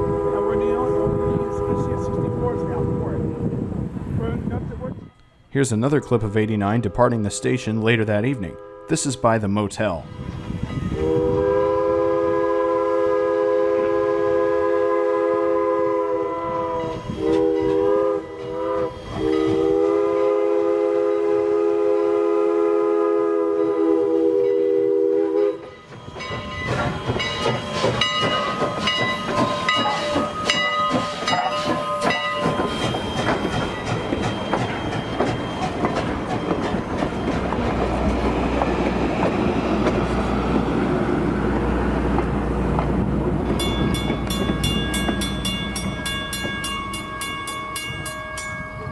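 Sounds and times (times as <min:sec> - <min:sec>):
steam whistle blasts: 0:00.0 - 0:03.2, 0:10.9 - 0:25.7
train wheel clatter: 0:25.6 - 0:48.9
wheels clicking over rail joints: 0:25.6 - 0:48.9.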